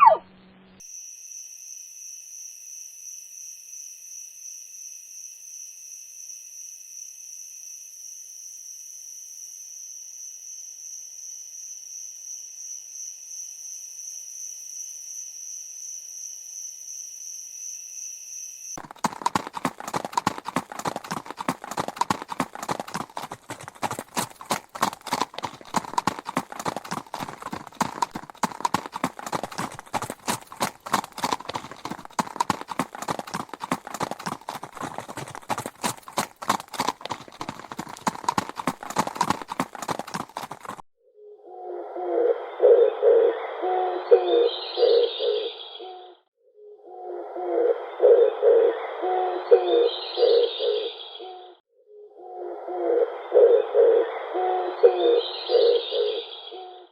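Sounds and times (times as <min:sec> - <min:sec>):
horse hooves clip-clopping: 0:18.8 - 0:40.8.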